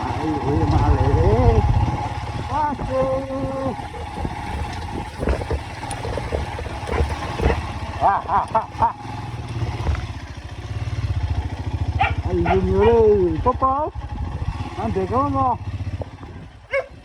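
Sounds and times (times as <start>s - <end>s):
motorcycle engine running slowly: 0.0s - 17.0s
clattering knocks: 2.1s - 8.9s.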